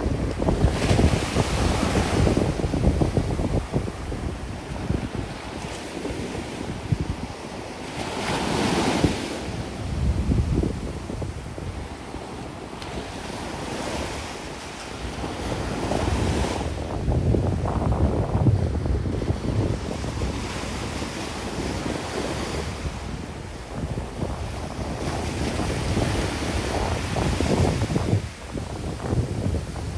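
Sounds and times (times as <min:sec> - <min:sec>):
waves washing onto beach: 0:00.0 - 0:29.9
wind buffeting microphone: 0:00.0 - 0:29.9.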